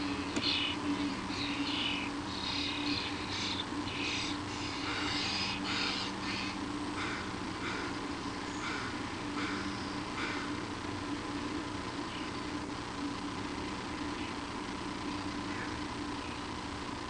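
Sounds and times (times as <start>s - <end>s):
birds giving harsh hissy calls: 0.0s - 11.0s
lower bird notes: 0.0s - 16.6s.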